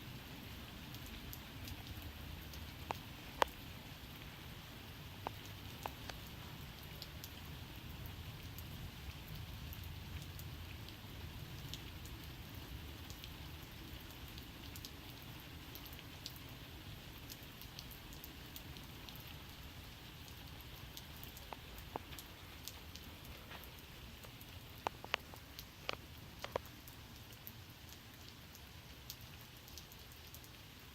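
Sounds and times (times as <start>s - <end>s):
steady rain falling: 0.0s - 30.9s
raindrops tapping close by: 0.1s - 30.9s
sharp drips: 11.6s - 30.6s.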